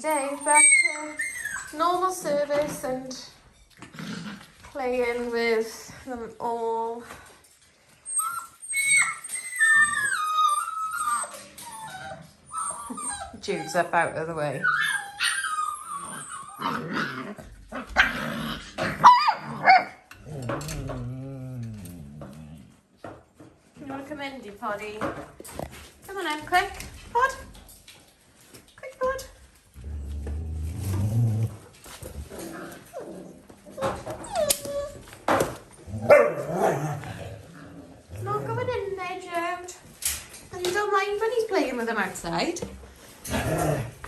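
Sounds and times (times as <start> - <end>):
puppies yipping and barking: 0.0 - 2.1, 8.0 - 14.0, 14.6 - 18.2
puppy whining: 0.0 - 2.4, 8.0 - 22.7, 29.8 - 37.4
puppy growling: 3.8 - 4.8, 14.6 - 23.0, 29.7 - 39.0, 43.2 - 44.0.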